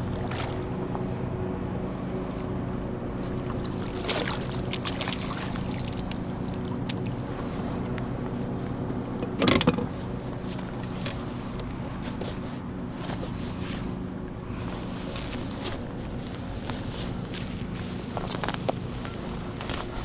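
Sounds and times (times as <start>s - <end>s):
steady low hum: 0.0s - 20.0s
light water sounds: 3.2s - 9.1s.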